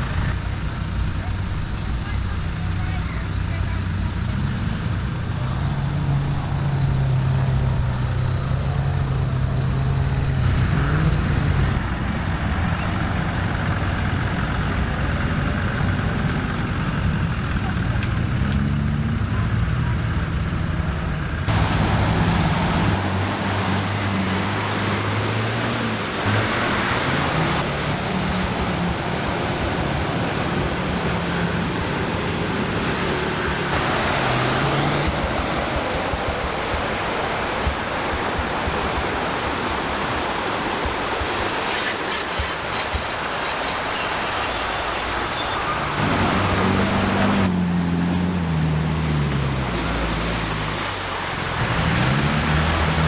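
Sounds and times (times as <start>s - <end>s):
off-road vehicle engines revving: 0.0s - 53.0s
steady rushing noise: 21.4s - 47.6s.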